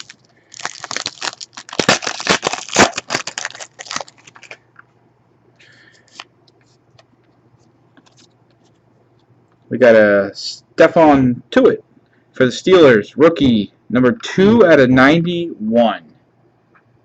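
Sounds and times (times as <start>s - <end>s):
foil wrapper tearing and crinkling: 0.0s - 4.6s
faint rustles and clicks: 6.0s - 9.3s.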